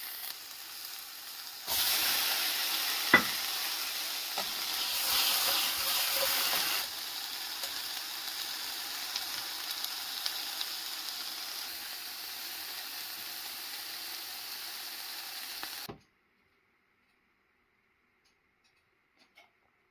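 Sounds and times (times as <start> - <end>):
steak sizzling in a pan: 0.0 - 15.9.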